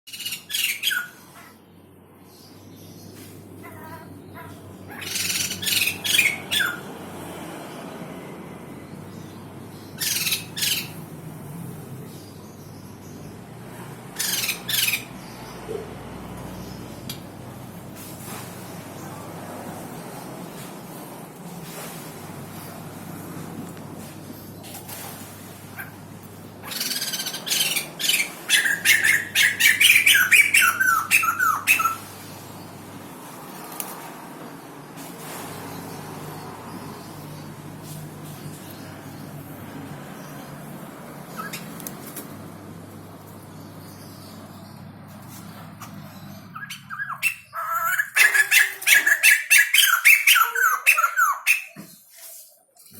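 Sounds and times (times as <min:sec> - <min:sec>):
bird rasping and squawking: 0:03.5 - 0:07.0, 0:10.0 - 0:11.1, 0:14.1 - 0:15.3, 0:24.9 - 0:32.4, 0:45.3 - 0:52.4.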